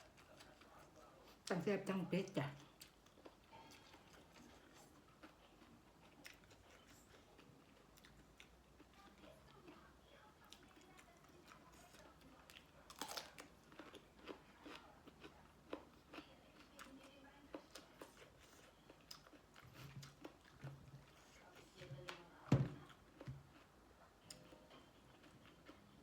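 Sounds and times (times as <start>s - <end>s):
person chewing food: 0.0s - 1.5s, 2.6s - 26.0s.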